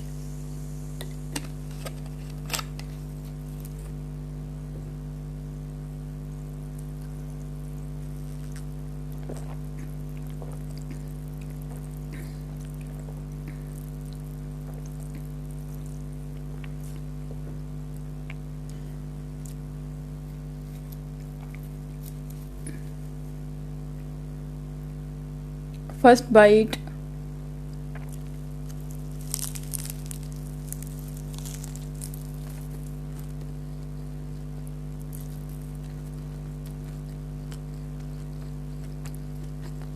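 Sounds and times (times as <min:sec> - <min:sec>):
low electrical hum: 0:00.0 - 0:39.9
small clicks and crackles: 0:28.0 - 0:33.5.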